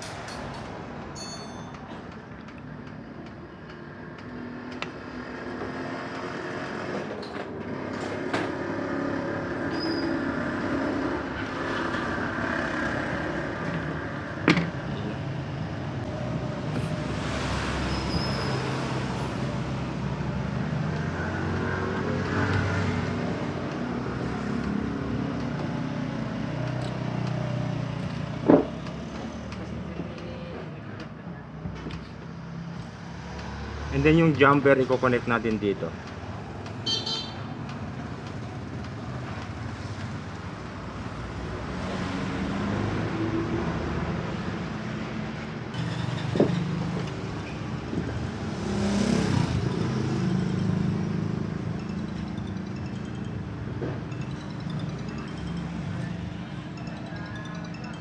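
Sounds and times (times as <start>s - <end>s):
motor traffic passing: 0.0s - 58.0s
sharp knocks: 28.4s - 28.8s.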